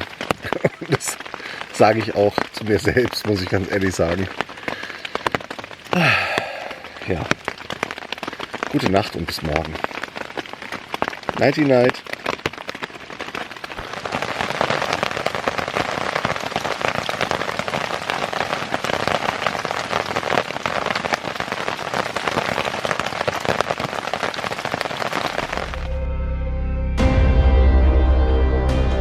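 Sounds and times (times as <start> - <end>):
rain on a shelter: 0.0 - 26.1
music: 25.9 - 29.0.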